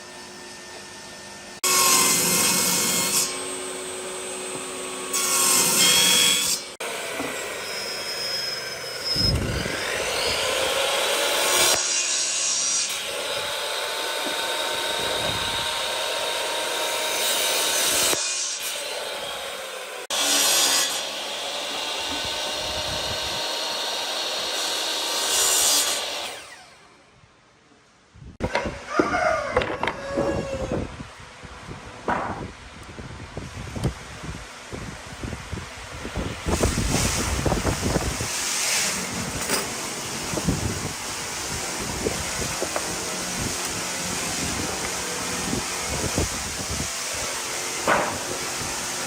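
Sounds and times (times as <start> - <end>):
power tools cutting wood: 1.6 - 27.0, 36.4 - 49.0.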